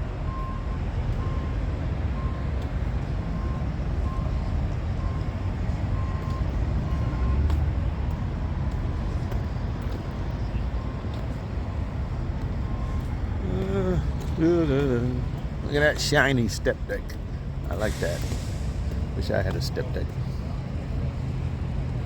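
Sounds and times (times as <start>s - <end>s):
diesel truck engines running: 0.0s - 22.0s
faint beep: 0.3s - 1.6s, 3.3s - 7.6s, 12.6s - 13.7s.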